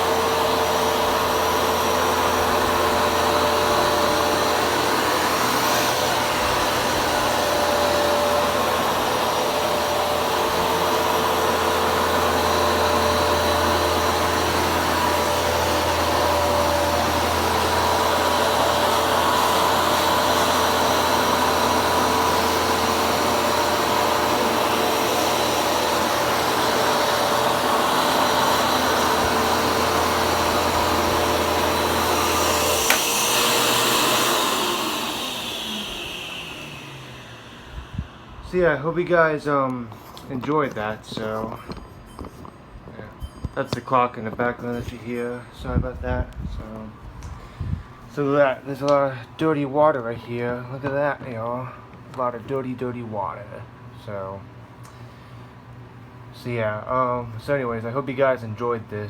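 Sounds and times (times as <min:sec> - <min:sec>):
carpet shampooer motor whine: 0:00.0 - 0:40.1.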